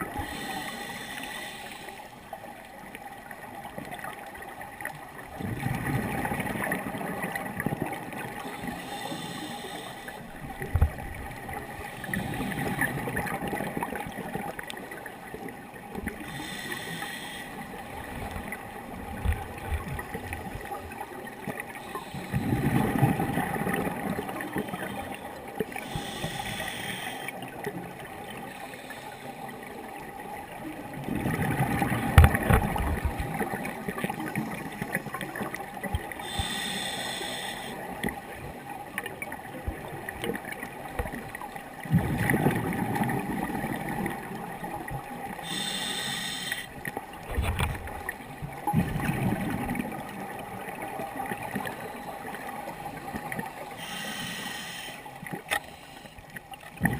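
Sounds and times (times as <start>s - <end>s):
regulator inhale hiss: 0.1s - 2.2s, 8.4s - 10.4s, 16.2s - 17.8s, 21.8s - 22.6s, 24.3s - 27.4s, 28.5s - 29.7s, 36.2s - 38.0s, 45.4s - 46.8s, 53.5s - 56.3s.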